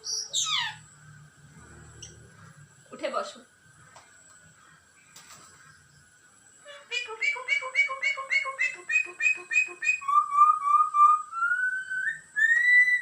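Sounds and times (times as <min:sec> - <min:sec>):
bird chick calling and whistling: 0:00.0 - 0:00.8, 0:06.7 - 0:13.0.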